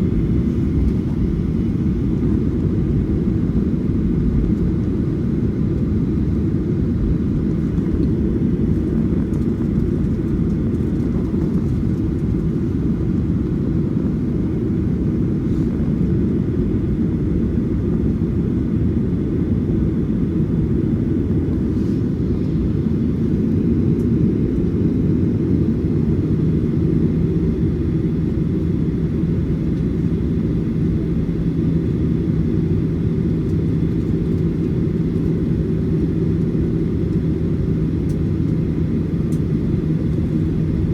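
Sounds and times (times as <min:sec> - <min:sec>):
aircraft cabin engine rumble: 0:00.0 - 0:40.9
steady low hum: 0:00.0 - 0:40.9.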